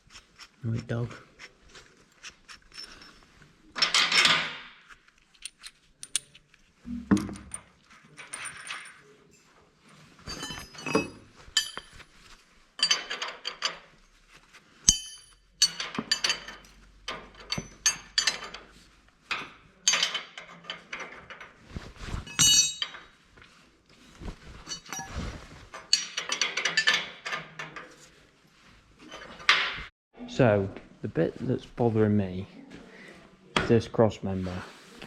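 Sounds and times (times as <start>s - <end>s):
metal bolts and tools clinking: 2.2s - 9.5s, 10.2s - 14.1s, 14.8s - 21.6s, 22.2s - 23.2s, 24.6s - 28.2s, 29.0s - 29.9s.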